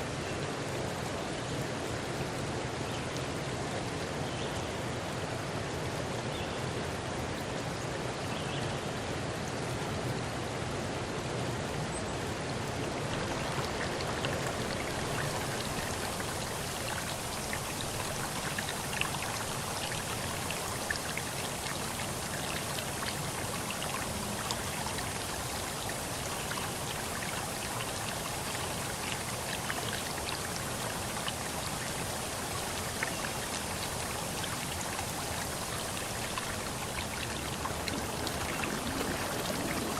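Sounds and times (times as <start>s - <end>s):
water rushing and pattering: 8.9s - 39.9s.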